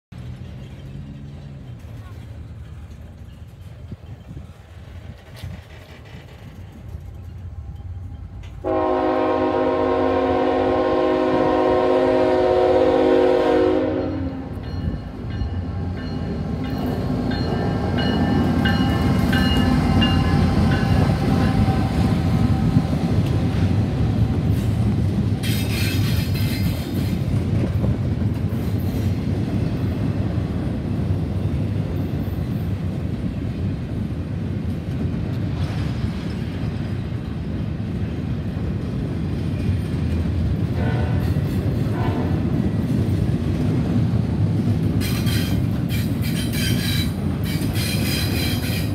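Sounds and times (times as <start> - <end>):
wheels clattering on rails: 0.1 - 8.7, 14.1 - 48.9
train rumbling past: 0.1 - 48.9
locomotive horn: 8.6 - 14.6, 40.8 - 42.5.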